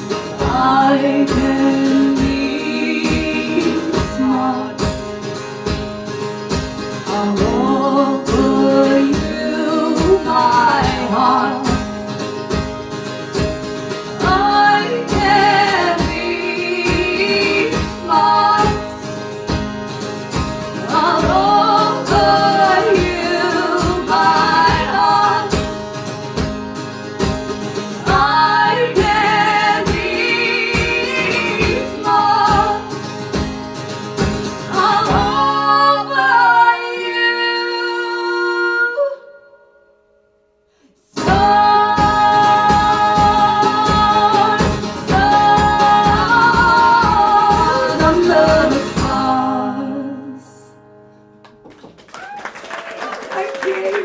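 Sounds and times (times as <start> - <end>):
women singing: 0.0 - 5.2, 7.0 - 12.2, 13.8 - 19.6, 20.5 - 26.5, 27.8 - 33.5, 34.4 - 39.6, 41.0 - 50.8
strummed guitar: 0.0 - 38.1, 41.2 - 52.1.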